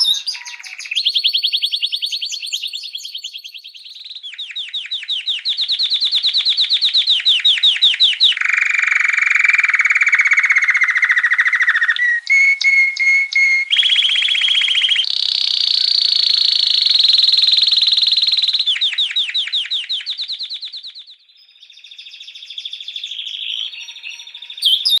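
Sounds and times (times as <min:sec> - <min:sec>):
canary singing trills: 0:00.0 - 0:25.0.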